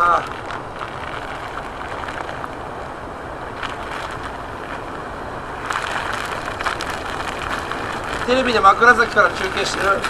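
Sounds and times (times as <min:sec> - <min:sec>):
strong wind on microphone: 0:00.0 - 0:10.0.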